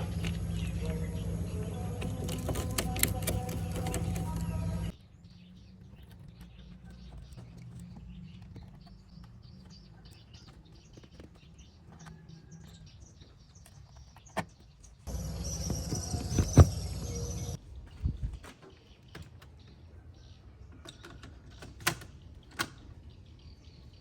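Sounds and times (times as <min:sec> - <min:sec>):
faint low hum: 0:00.0 - 0:05.0, 0:15.1 - 0:17.6
steady mechanical sound: 0:00.0 - 0:05.0, 0:15.1 - 0:17.6
small clicks and ticks: 0:01.9 - 0:04.9.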